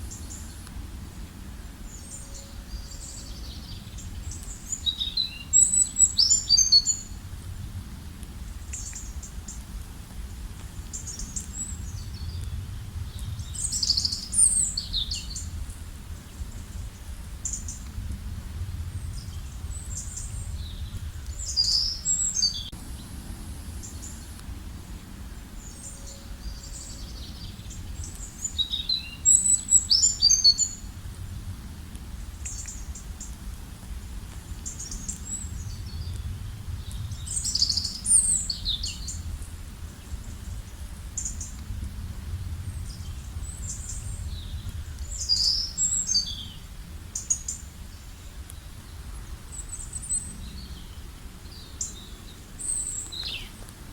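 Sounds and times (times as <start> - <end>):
low outdoor rumble: 0.0 - 53.9
songbirds chirping: 0.0 - 53.9.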